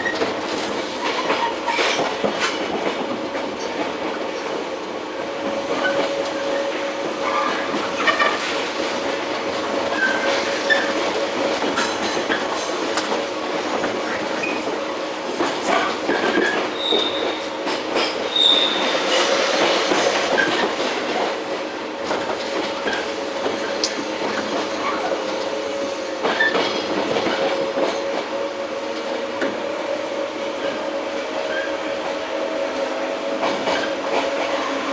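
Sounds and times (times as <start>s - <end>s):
electric train rumble and hum: 0.0s - 34.9s
rail joint clicks: 0.0s - 34.9s
high wheel squeals: 16.4s - 17.5s, 18.3s - 19.2s.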